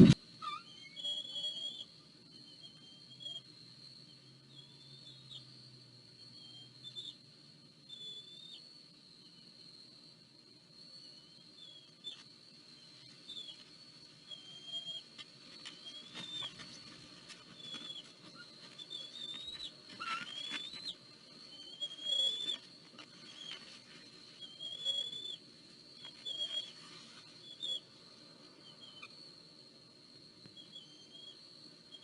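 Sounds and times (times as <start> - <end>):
low rumble of wind: 0.0 - 0.2
thin high whine: 0.0 - 0.6
high whistled bird calls: 0.0 - 3.4, 14.3 - 15.0, 15.7 - 16.8, 17.6 - 22.6, 24.4 - 25.4, 26.2 - 26.8.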